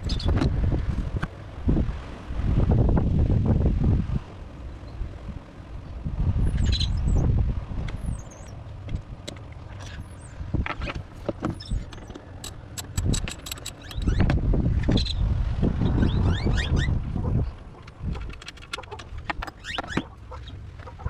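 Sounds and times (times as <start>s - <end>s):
birds chirping: 11.5s - 14.3s
tools knocking: 12.4s - 14.0s
socket wrench ratcheting: 12.4s - 14.2s.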